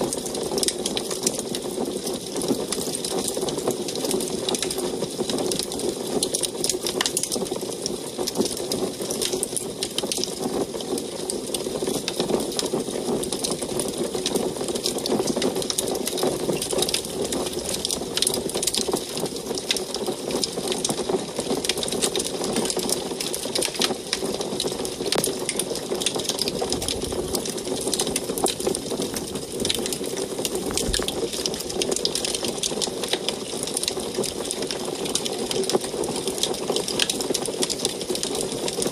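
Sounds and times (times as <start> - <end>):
wood fire crackling: 0.0 - 38.9
low rush of flames: 25.1 - 32.8.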